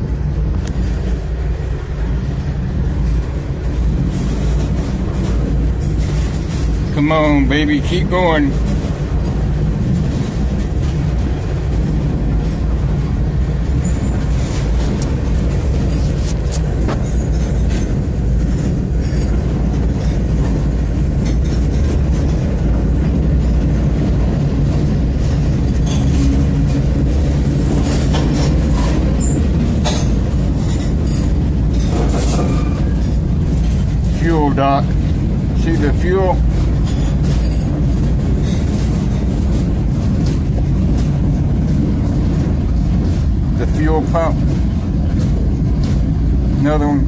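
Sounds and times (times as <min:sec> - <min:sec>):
train wheels rumbling on rail: 0:00.0 - 0:47.0
clanks and clicks: 0:24.7 - 0:47.0.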